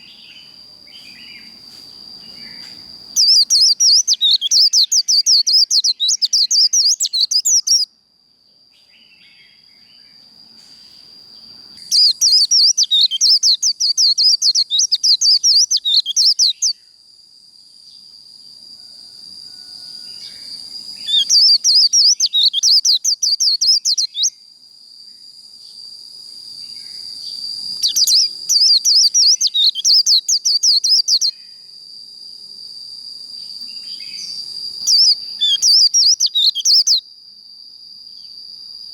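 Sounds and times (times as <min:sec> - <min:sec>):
bird chattering warble: 0:03.2 - 0:07.8, 0:27.8 - 0:31.3, 0:34.9 - 0:37.0.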